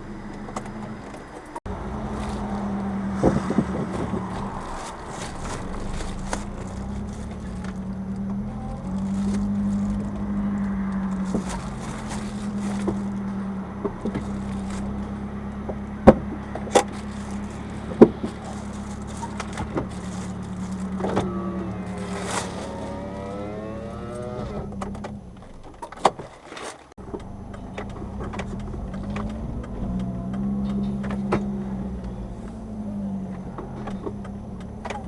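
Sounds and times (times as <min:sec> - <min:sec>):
small engine running: 0:16.9 - 0:24.9.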